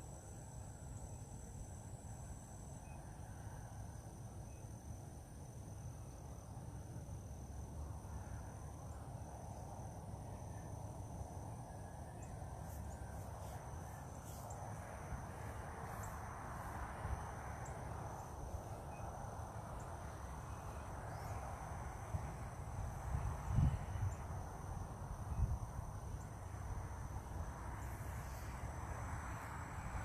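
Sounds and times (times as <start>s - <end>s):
insects trilling: 0.0s - 30.0s
low outdoor rumble: 6.6s - 30.0s.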